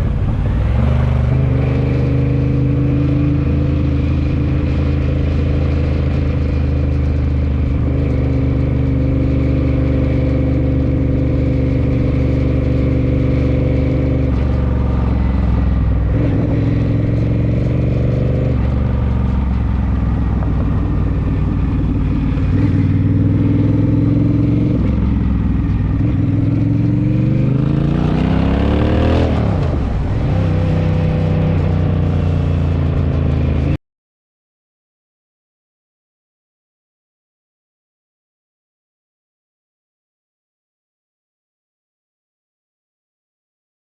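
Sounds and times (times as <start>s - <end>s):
motorcycle engine running: 0.0s - 33.8s.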